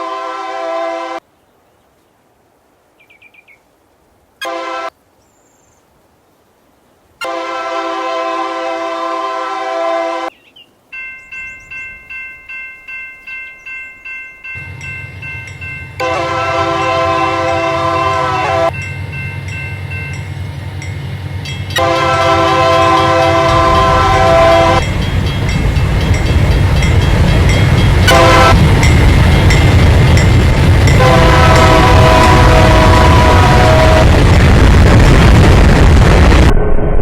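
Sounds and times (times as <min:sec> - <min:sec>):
locomotive air horn: 0:00.0 - 0:01.2, 0:04.4 - 0:05.0, 0:07.2 - 0:10.3, 0:16.0 - 0:18.8, 0:21.7 - 0:24.8, 0:28.0 - 0:28.9, 0:30.9 - 0:34.3
train engine rumble: 0:10.9 - 0:37.0
ringing bell: 0:11.0 - 0:16.0, 0:18.7 - 0:21.8.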